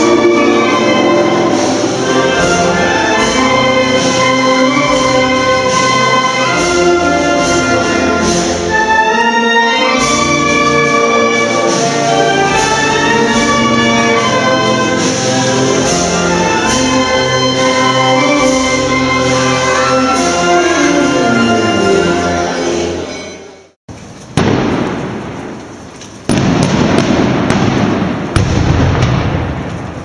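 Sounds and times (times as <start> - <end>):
brass band playing: 0.0 - 23.7.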